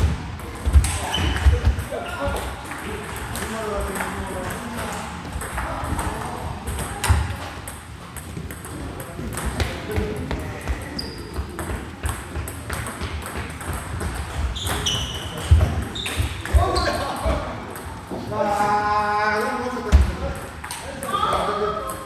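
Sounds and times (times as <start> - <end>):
table tennis ball bouncing on table: 5.3 - 10.0, 11.5 - 17.9
table tennis ball hitting rackets: 5.3 - 10.0, 11.5 - 18.0.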